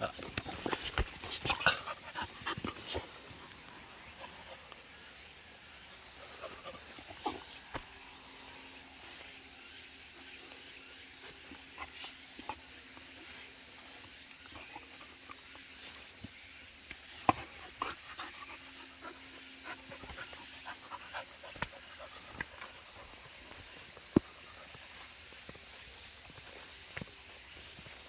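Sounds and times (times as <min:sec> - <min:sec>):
dog panting: 0:00.1 - 0:04.9, 0:17.2 - 0:25.9.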